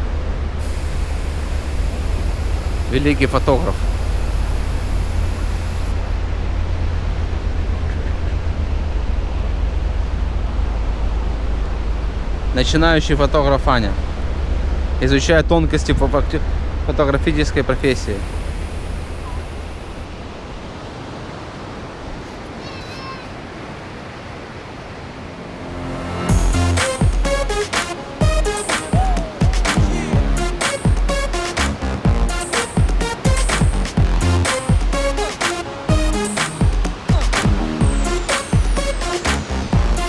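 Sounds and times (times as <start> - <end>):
wind: 0.0 - 40.0
sea surf: 0.6 - 7.3, 17.8 - 40.0
high-pitched call: 25.3 - 40.0.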